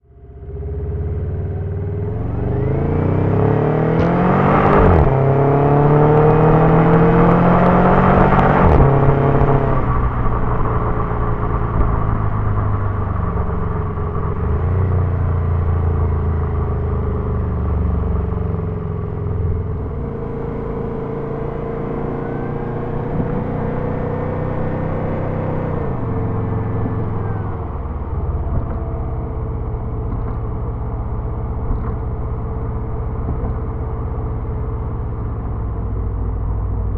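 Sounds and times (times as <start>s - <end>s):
car engine accelerating hard: 0.1s - 36.9s
gear change: 18.8s - 36.9s.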